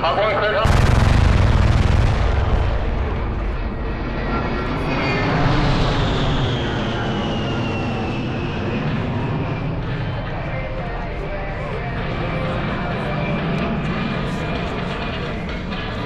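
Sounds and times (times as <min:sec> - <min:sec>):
jet engines roaring: 0:00.0 - 0:16.0
high whine falling in pitch: 0:00.7 - 0:07.4.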